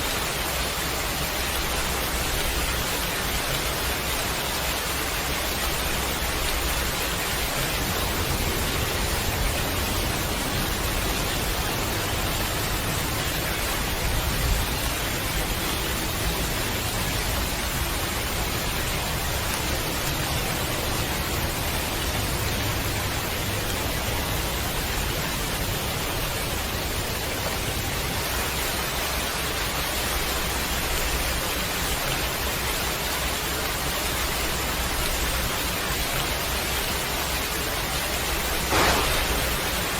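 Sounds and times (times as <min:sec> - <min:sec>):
heavy rain falling: 0:00.0 - 0:39.9
low rumble: 0:38.6 - 0:39.9
brief loud thump: 0:38.7 - 0:39.9.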